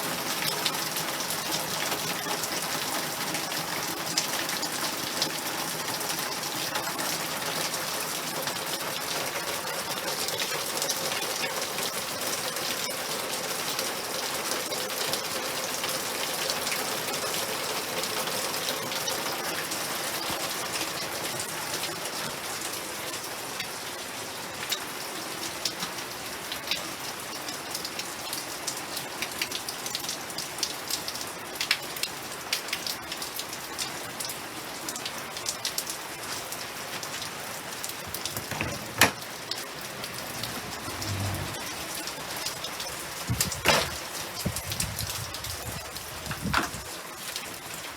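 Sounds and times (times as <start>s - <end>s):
rain falling: 0.0s - 47.9s.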